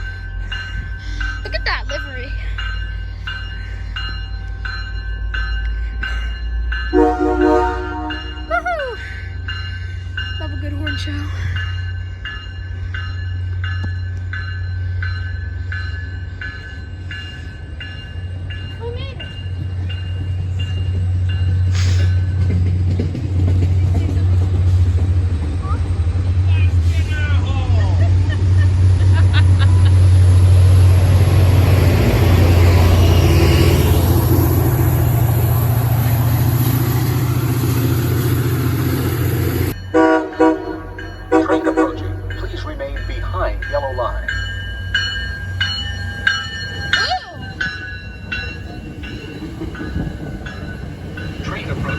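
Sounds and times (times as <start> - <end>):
low rumble of a train: 0.0 - 51.9
railroad crossing bell ringing: 0.0 - 51.9
train horn blasts: 6.9 - 8.5, 39.8 - 42.3.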